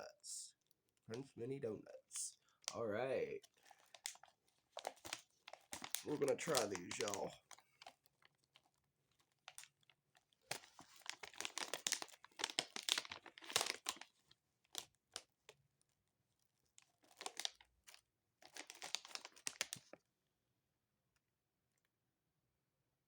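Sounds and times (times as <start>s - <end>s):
plastic wrapper crinkling and tearing: 2.1s - 15.6s, 16.7s - 20.0s.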